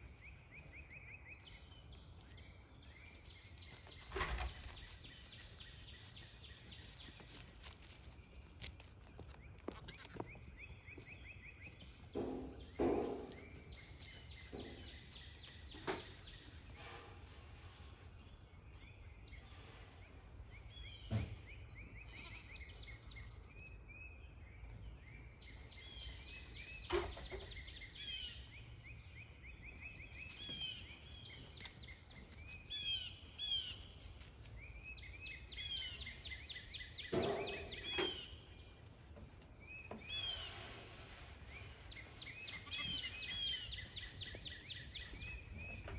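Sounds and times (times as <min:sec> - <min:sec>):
small birds chirping: 0:00.0 - 0:45.9
louder lower bird sounds: 0:09.9 - 0:38.9, 0:39.6 - 0:45.9.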